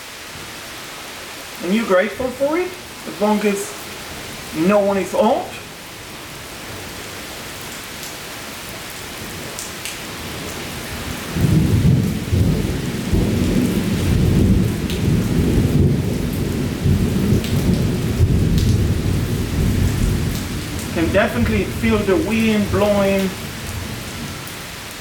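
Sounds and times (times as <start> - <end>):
heavy rain falling: 0.0 - 25.0
loud low thunder rumble: 11.4 - 24.3.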